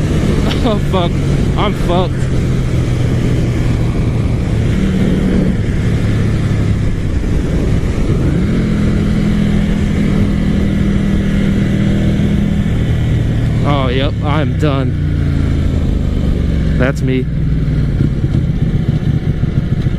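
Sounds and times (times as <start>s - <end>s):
wind rushing: 0.0s - 14.2s
motorcycle engine running: 0.0s - 19.9s.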